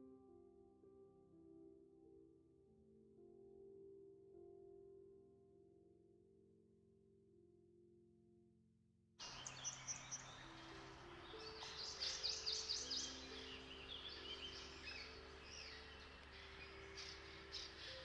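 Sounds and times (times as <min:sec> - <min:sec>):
soft held music notes: 0:09.2 - 0:18.0
songbirds singing and chirping: 0:09.2 - 0:18.0.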